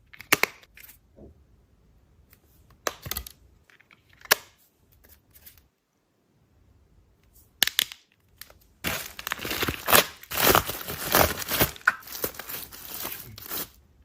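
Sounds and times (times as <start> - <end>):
crinkling plastic wrapping: 8.4 - 13.8.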